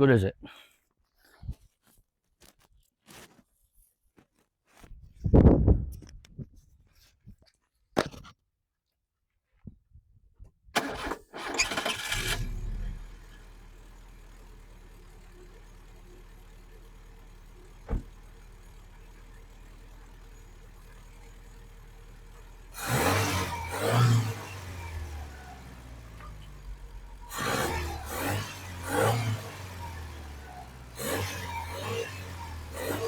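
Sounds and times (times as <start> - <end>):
car engine cranking and idling: 10.8 - 33.0.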